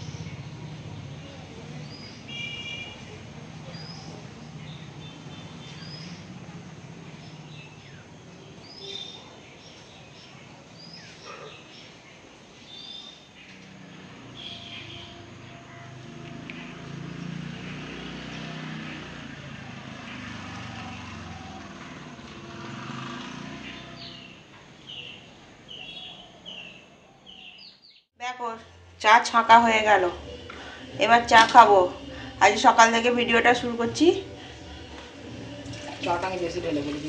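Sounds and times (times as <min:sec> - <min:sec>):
birds chirping: 0:00.0 - 0:37.0
low steady outdoor hum: 0:28.2 - 0:37.0.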